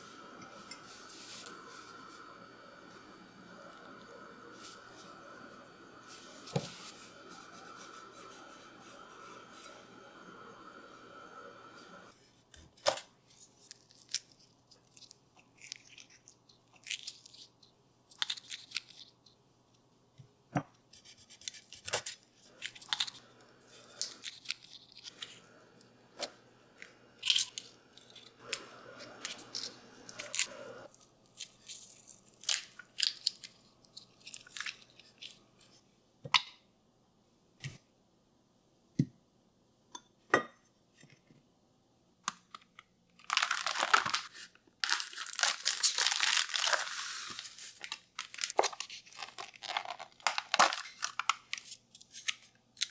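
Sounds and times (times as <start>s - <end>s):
rustling: 43.2s - 52.3s.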